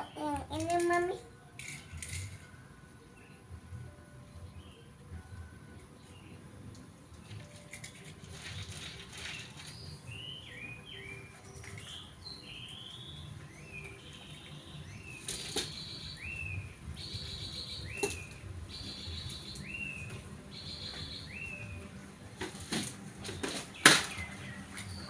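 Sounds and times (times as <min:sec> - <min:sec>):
small birds chirping: 0:08.8 - 0:21.9.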